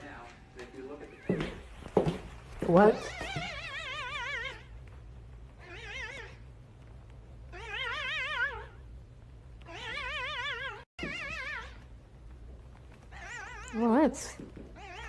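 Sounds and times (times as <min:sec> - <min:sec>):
cat wavering cries: 0:02.9 - 0:04.8, 0:05.6 - 0:06.5, 0:07.5 - 0:08.9, 0:09.6 - 0:11.9, 0:13.0 - 0:14.0, 0:14.7 - 0:15.0.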